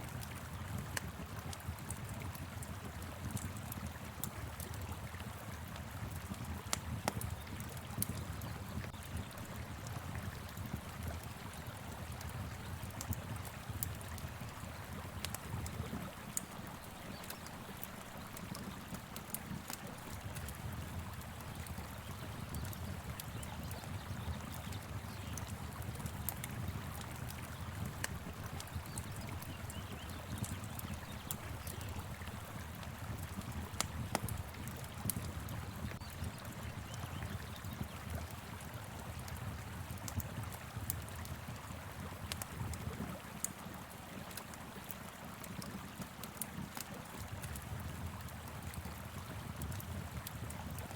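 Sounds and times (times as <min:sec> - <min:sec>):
wood fire crackling: 0:00.2 - 0:38.6.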